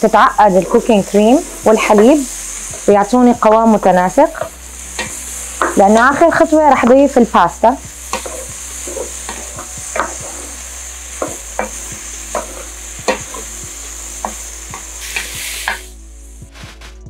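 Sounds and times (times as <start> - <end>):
food sizzling in a pot: 0.0 - 17.0
wooden spoon knocking on pot: 4.4 - 6.3.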